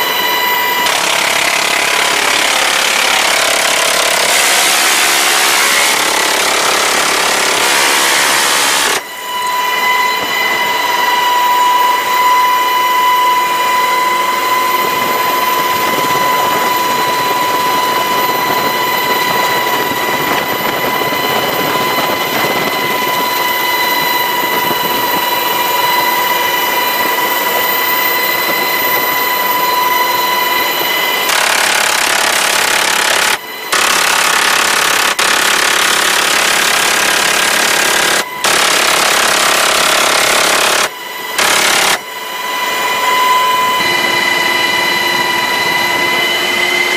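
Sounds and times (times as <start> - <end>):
harsh rushing noise: 0.0 - 12.2
continuous rushing noise: 0.0 - 46.9
helicopter turbine whine: 0.0 - 46.9.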